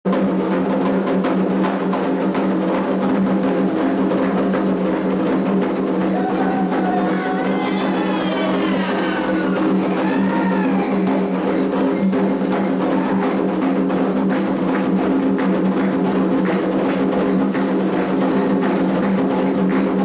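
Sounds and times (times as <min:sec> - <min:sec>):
hand drums fast rhythm: 0:00.0 - 0:20.0
people singing: 0:06.4 - 0:11.0.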